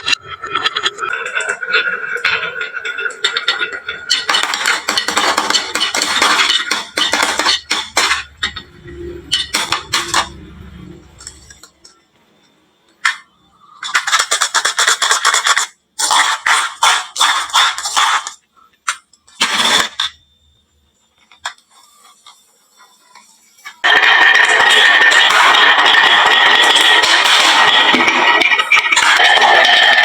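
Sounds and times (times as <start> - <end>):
marbles clattering down wooden track: 0.0 - 8.6, 23.8 - 30.0.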